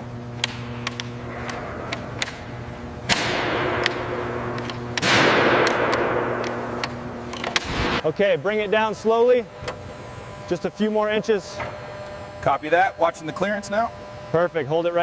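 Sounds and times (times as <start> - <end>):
hoist machine hum: 0.0 - 15.0.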